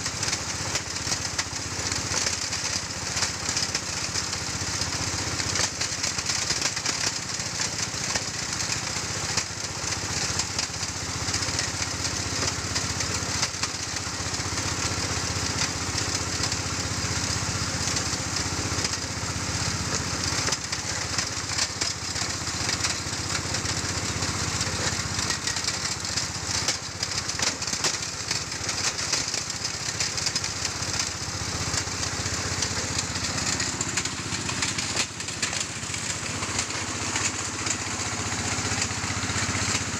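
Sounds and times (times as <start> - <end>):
engine drone: 0.0 - 39.9
grinding mill rattling: 0.0 - 39.9.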